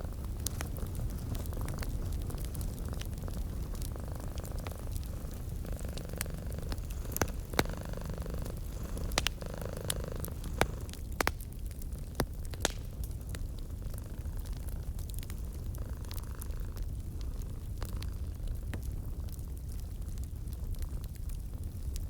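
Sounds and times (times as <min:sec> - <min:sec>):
cat purring: 0:00.0 - 0:11.3, 0:13.3 - 0:21.7
wood fire crackling: 0:00.0 - 0:22.0.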